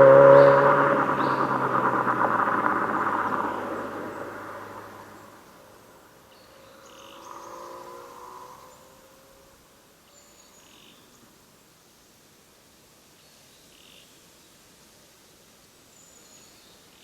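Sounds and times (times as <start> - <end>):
car engine and exhaust pulling away: 0.0 - 9.6.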